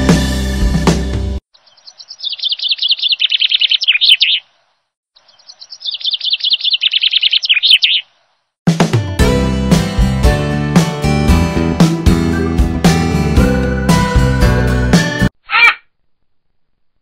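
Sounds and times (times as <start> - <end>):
songbird chirping trill: 0.0 - 8.6.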